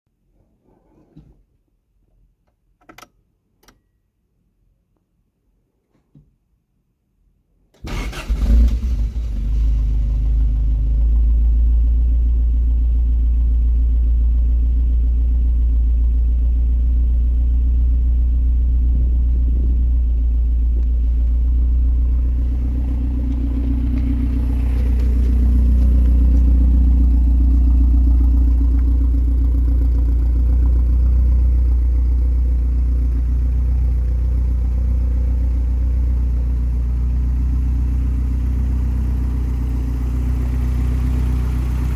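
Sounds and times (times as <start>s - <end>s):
pickup engine idling: 9.1s - 41.9s.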